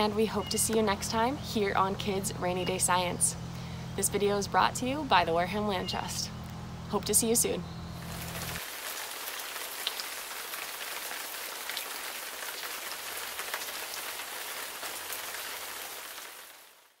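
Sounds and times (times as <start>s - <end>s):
steady rain hiss: 8.0s - 17.0s.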